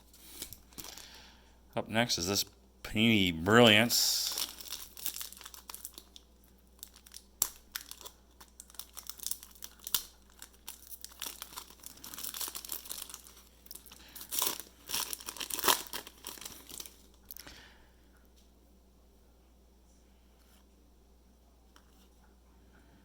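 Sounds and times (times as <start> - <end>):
wrapper crinkling: 0.1 - 1.2, 3.6 - 17.5.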